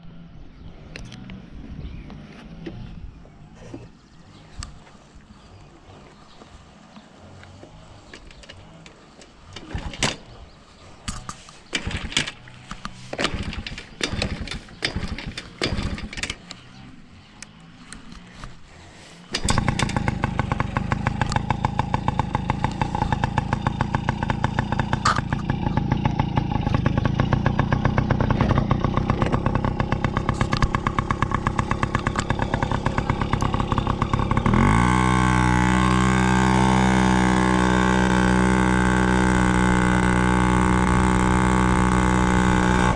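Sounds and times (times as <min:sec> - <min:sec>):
motorcycle engine idling and revving: 0:00.0 - 0:42.9
irregular knocks and clunks: 0:07.6 - 0:10.3, 0:11.0 - 0:16.6.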